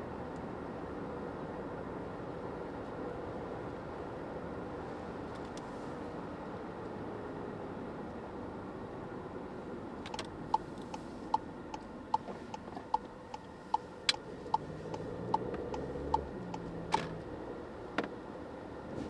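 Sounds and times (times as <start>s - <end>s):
cabin road noise: 9.0s - 19.0s
turn signal ticking: 10.0s - 17.4s.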